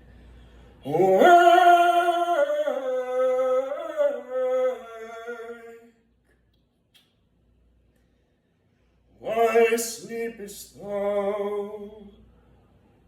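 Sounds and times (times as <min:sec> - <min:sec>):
person singing wordlessly: 0:00.8 - 0:06.0, 0:09.2 - 0:12.2.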